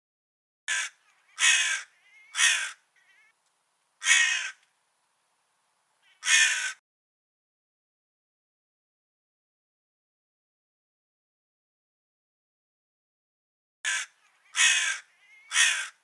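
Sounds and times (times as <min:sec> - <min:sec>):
crow cawing: 0:00.7 - 0:03.4, 0:04.0 - 0:04.6, 0:06.0 - 0:06.8, 0:13.9 - 0:16.0
faint soft bird calls: 0:00.7 - 0:06.8, 0:13.9 - 0:16.0.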